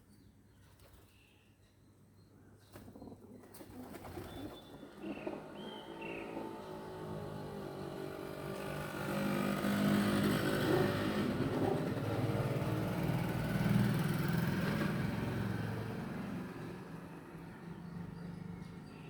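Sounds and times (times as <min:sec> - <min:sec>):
vehicle engine passing by: 0:05.6 - 0:18.8.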